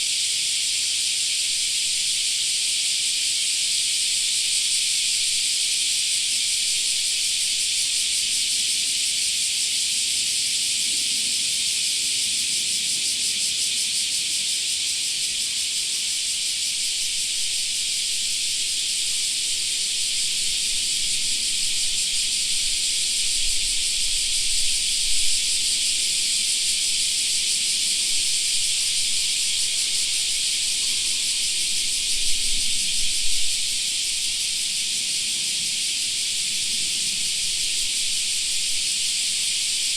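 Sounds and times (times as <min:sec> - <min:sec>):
cicadas shrilling: 0:00.0 - 0:39.9.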